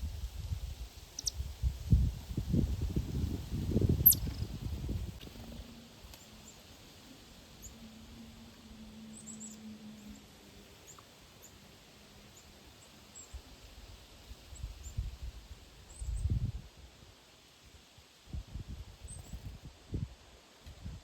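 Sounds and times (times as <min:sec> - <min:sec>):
birds chirping: 0:01.1 - 0:01.4, 0:03.8 - 0:13.8
low steady hum: 0:02.0 - 0:16.7.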